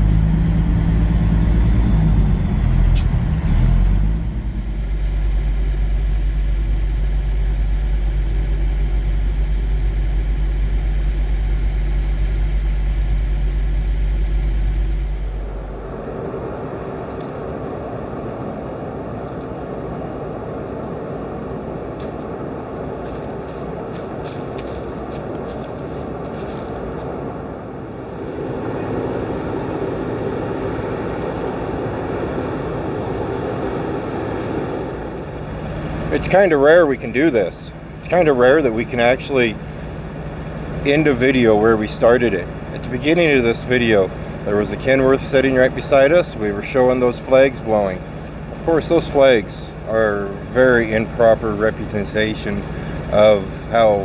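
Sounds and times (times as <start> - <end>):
diesel truck engine rumbling: 0.0 - 54.0
steady rushing noise: 10.5 - 41.2.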